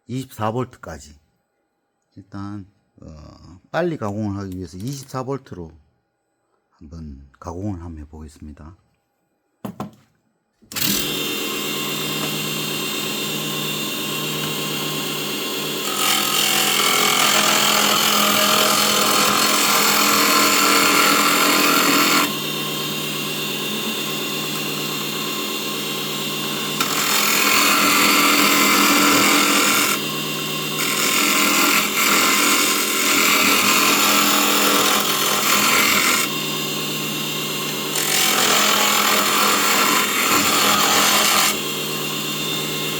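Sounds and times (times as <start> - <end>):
lathe motor hum: 10.8 - 42.9
tool scraping spinning wood: 15.6 - 22.4, 26.4 - 42.9.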